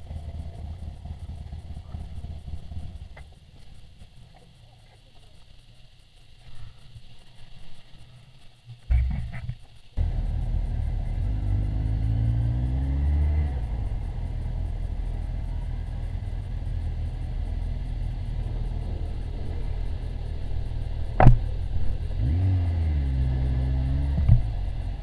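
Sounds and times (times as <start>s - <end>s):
motorcycle engine: 0.0s - 4.4s, 10.0s - 25.0s.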